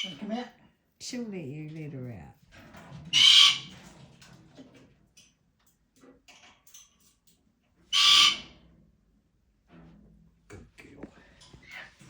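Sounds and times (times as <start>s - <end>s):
bird squawking loudly: 3.2s - 3.7s, 8.0s - 8.4s.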